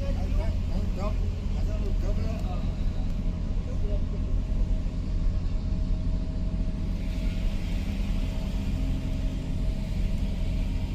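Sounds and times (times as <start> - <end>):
vehicle engine rumble: 0.0 - 10.9
hiss: 6.8 - 10.9.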